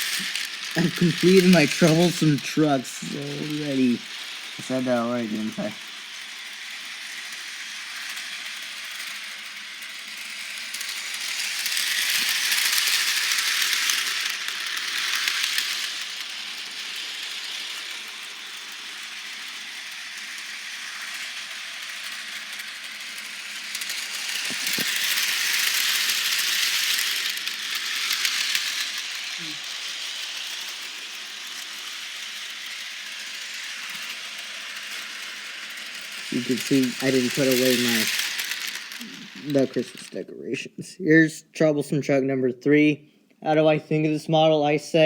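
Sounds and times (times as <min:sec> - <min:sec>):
model train rattling on track: 0:00.0 - 0:40.5.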